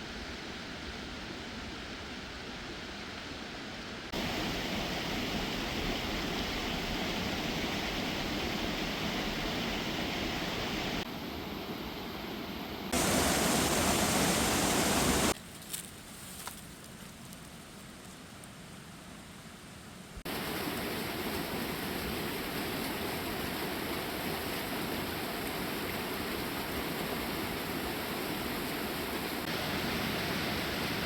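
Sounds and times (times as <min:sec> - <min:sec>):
waterfall rushing water: 0:04.2 - 0:11.0, 0:12.9 - 0:15.4, 0:20.3 - 0:31.0.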